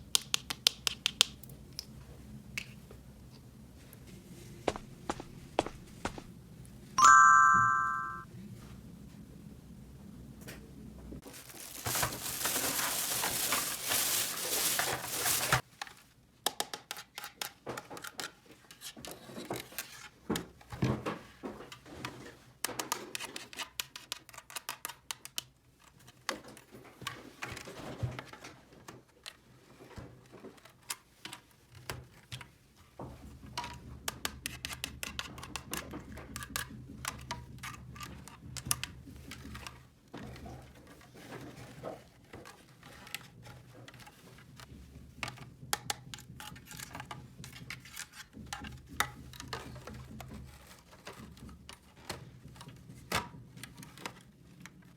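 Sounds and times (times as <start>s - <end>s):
plastic packaging rustling: 11.2s - 15.6s.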